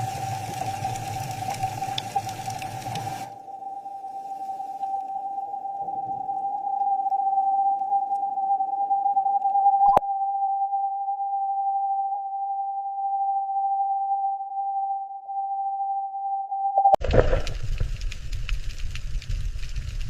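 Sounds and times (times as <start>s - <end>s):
scattered crackles: 0.0s - 8.3s, 17.0s - 20.0s.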